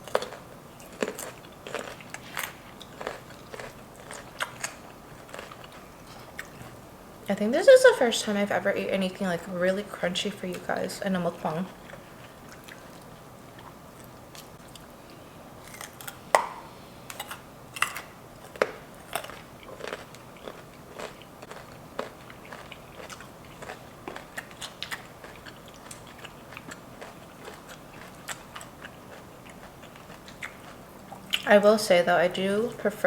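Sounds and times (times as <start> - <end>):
crunching bite: 0.0 - 6.8, 15.6 - 31.5
crunchy chewing: 0.0 - 6.9, 11.4 - 31.5.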